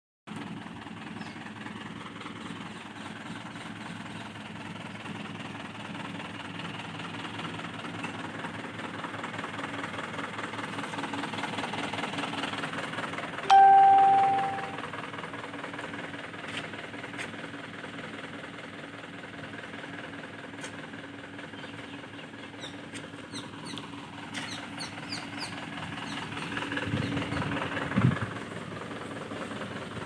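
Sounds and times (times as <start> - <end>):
diesel engine idling clatter: 0.3 - 30.0
loud single-pitched tone: 13.5 - 14.8.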